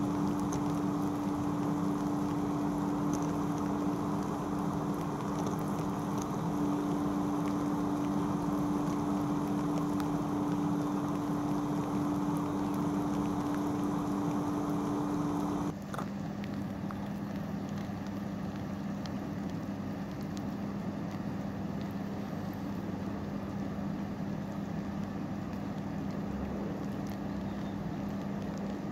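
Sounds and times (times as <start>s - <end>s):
higher hum: 0.0s - 15.7s
low hum: 0.0s - 15.8s
rain on a wet road: 0.0s - 28.9s.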